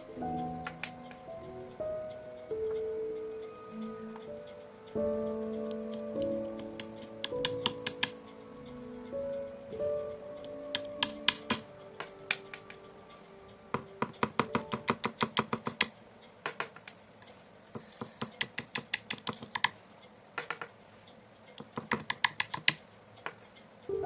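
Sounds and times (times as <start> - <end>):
faint held music tones: 0.0 - 24.0
painting tool tapping canvas: 6.2 - 8.2, 13.8 - 17.0, 17.8 - 19.8, 21.6 - 23.4.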